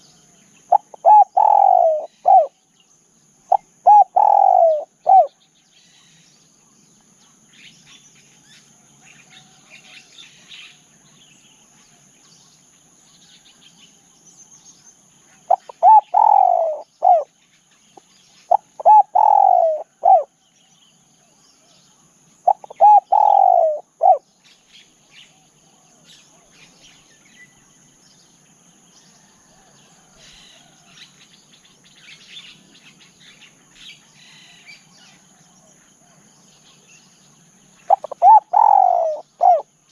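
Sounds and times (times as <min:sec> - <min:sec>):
small birds chirping: 0:00.0 - 0:28.4, 0:29.2 - 0:39.9
high insect drone: 0:00.0 - 0:39.9
dove cooing: 0:00.7 - 0:02.6, 0:03.5 - 0:05.4, 0:15.5 - 0:17.3, 0:18.5 - 0:20.4, 0:22.4 - 0:24.2, 0:37.8 - 0:39.7.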